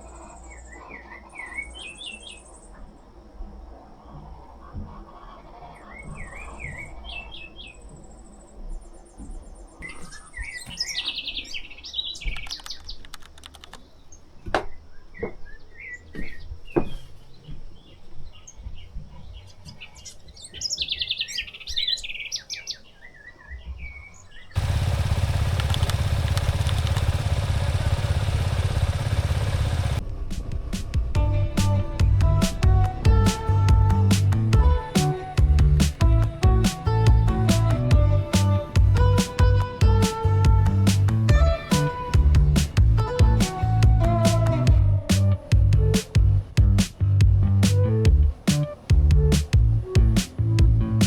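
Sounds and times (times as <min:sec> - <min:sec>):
small birds chirping: 0:00.0 - 0:30.0
sharp clicks: 0:12.3 - 0:13.9, 0:24.6 - 0:30.1
loud music: 0:31.1 - 0:46.9.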